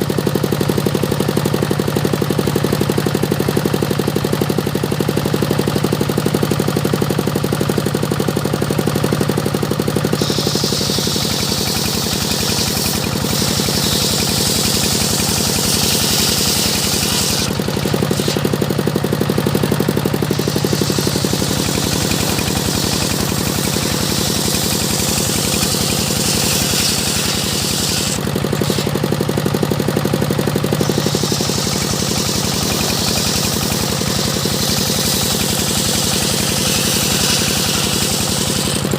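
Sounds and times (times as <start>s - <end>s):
engine running with fast knock: 0.0s - 38.9s
free-running saw hum: 8.9s - 38.9s
saw blade rasping into wood: 10.1s - 18.8s, 20.2s - 29.1s, 30.8s - 38.9s.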